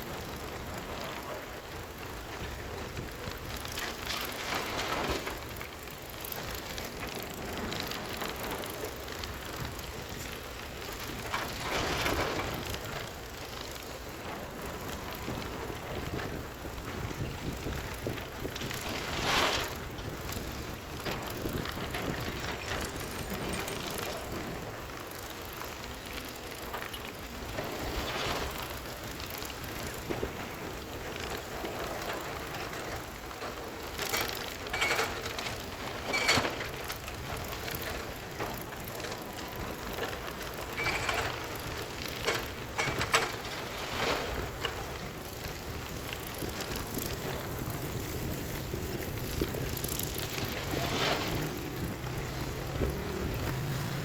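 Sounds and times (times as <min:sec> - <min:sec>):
heavy machinery rumble: 0:27.8 - 0:54.0.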